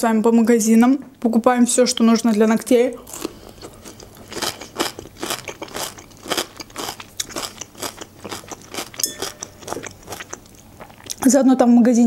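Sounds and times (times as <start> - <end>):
chewing crunchy raw vegetable: 3.0 - 11.3.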